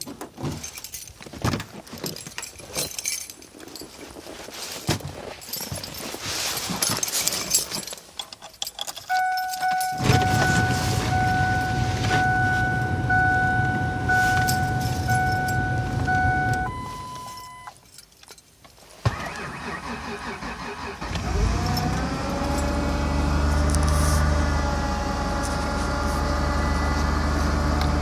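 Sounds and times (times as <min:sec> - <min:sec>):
keys jangling: 0:00.0 - 0:12.8, 0:14.1 - 0:18.8
low steady rumble: 0:09.1 - 0:17.7
car warning chime: 0:09.1 - 0:17.8.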